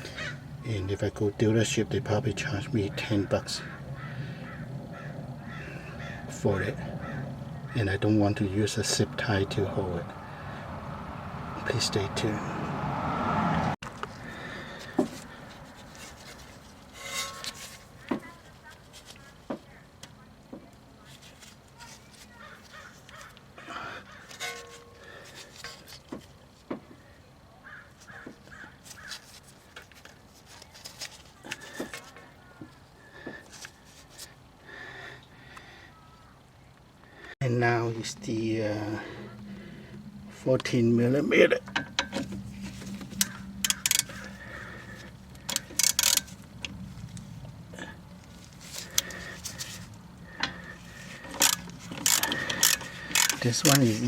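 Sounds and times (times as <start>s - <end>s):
low steady hum: 0.0s - 22.4s, 29.4s - 54.0s
bird calling: 2.8s - 8.0s, 41.4s - 45.9s
wrench clicking on nut: 43.2s - 44.2s, 45.4s - 46.3s, 51.2s - 53.4s.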